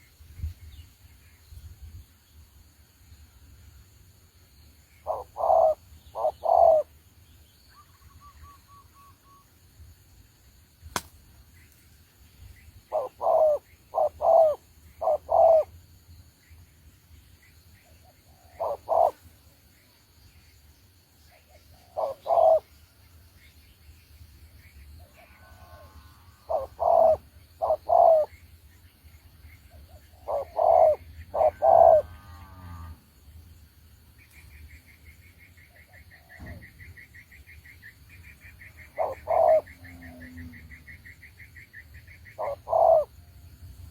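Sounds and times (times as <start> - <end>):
dove cooing: 5.0 - 6.9, 12.9 - 15.7, 18.0 - 19.2, 21.7 - 22.7, 26.5 - 28.3, 29.7 - 32.2, 38.8 - 40.9, 42.2 - 43.2.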